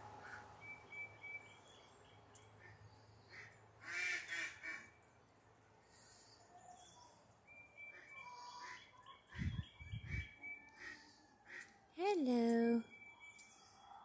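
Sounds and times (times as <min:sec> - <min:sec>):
faint high bird chirps: 0:00.6 - 0:02.5, 0:06.4 - 0:11.1, 0:12.0 - 0:14.0.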